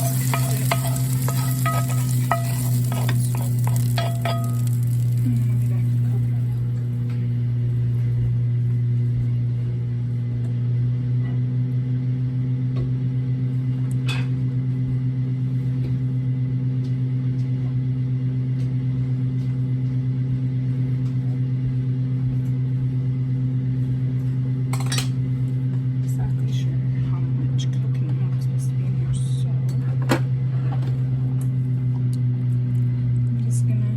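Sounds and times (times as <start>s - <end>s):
kitchen appliance motor humming: 0.0s - 9.2s.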